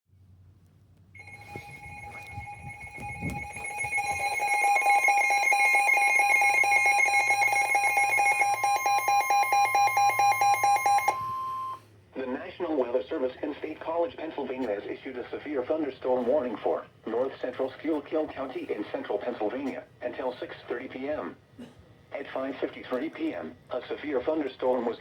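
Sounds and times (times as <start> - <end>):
rapid electronic beeping: 1.2 - 11.7
steady warning alarm tone: 1.2 - 11.8.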